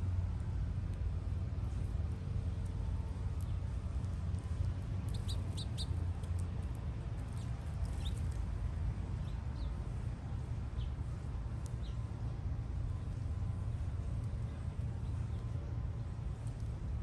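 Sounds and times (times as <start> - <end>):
small birds chirping: 5.0 - 6.0, 7.3 - 8.3.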